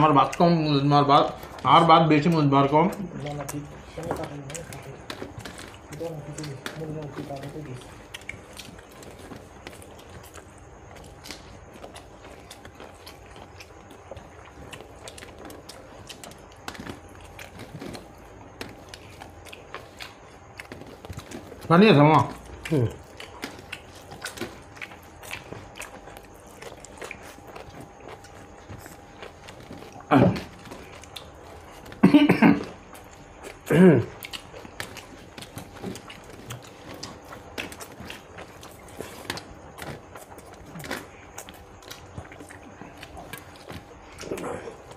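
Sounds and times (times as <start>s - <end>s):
people chewing food: 0.0s - 44.9s.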